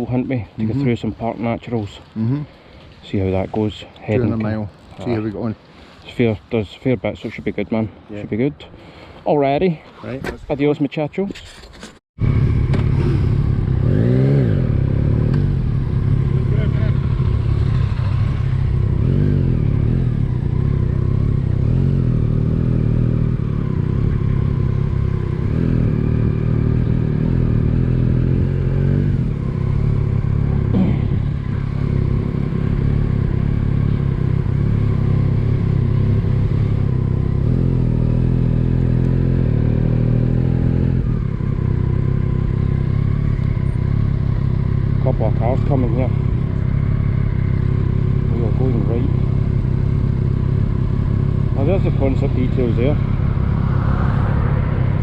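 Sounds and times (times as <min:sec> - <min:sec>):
motorcycle engine running: 0:12.2 - 0:55.0.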